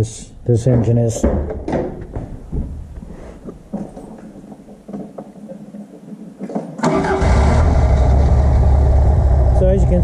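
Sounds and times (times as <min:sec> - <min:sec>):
car engine starting and running: 0:06.8 - 0:10.0.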